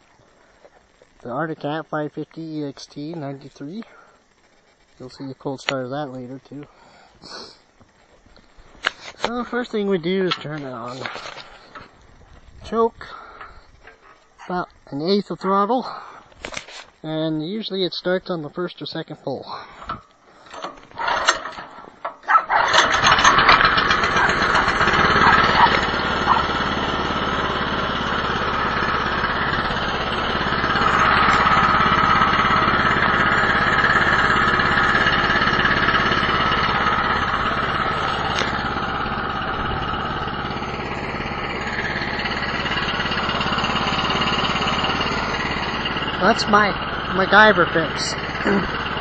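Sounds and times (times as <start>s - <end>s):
pull cord being pulled: 19.9s - 24.7s
small gas engine running: 20.4s - 49.0s.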